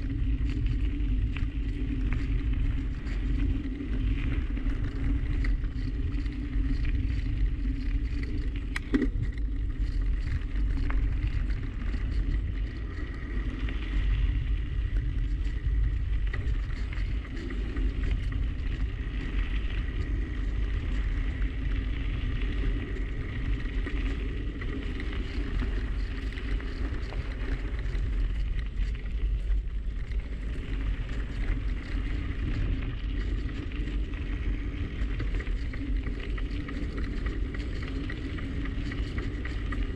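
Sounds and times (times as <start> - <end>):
bicycle road noise: 0.0 - 39.9
wind rumbling on microphone: 0.0 - 39.9.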